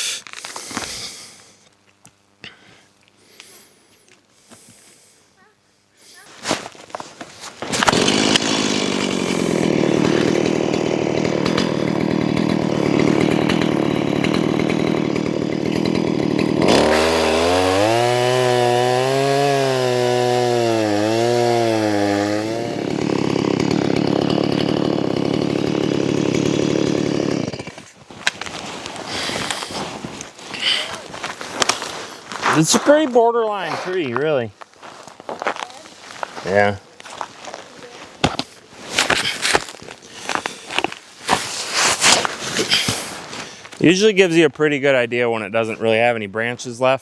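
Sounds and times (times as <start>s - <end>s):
chainsaw sawing a log: 7.2s - 34.1s, 35.5s - 44.2s.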